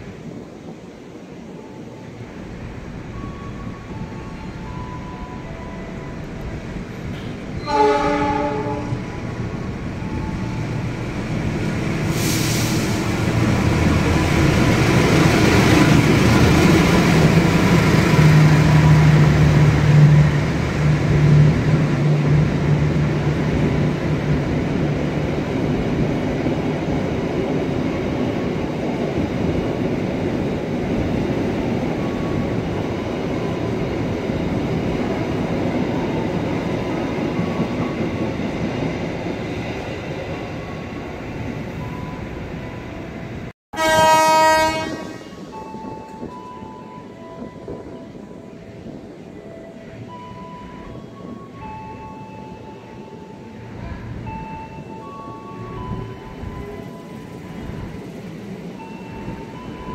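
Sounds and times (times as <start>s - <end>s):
train coaches rolling: 0.0s - 59.9s
diesel locomotive horn: 7.6s - 9.2s, 43.7s - 45.5s.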